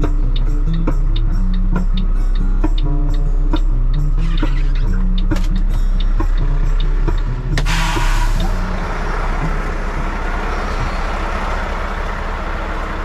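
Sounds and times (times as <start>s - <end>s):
heavy truck engine running: 0.0s - 13.0s
air hiss: 7.6s - 8.7s.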